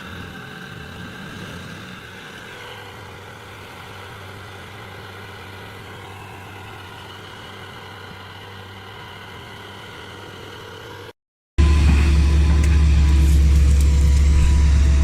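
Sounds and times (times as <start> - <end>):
stump grinder engine running: 11.6 - 15.0.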